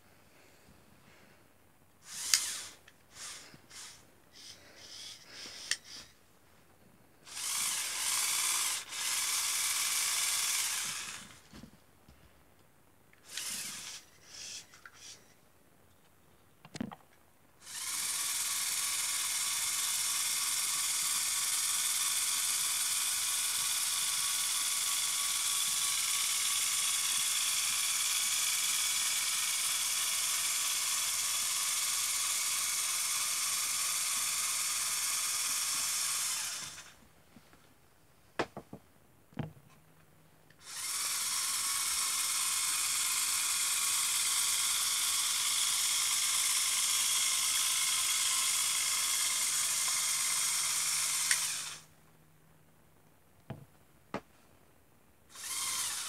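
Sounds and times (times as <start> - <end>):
toy electric motors whirring: 2.0 - 6.2, 7.3 - 11.5, 13.2 - 15.3, 17.6 - 37.0, 40.6 - 51.9, 55.3 - 56.0
sharp clicks: 2.3 - 3.0.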